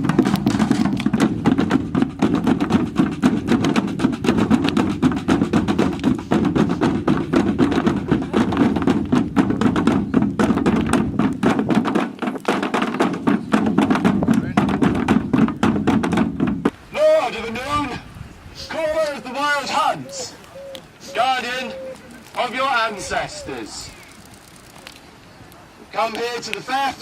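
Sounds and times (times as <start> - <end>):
fast drum roll: 0.0 - 16.7.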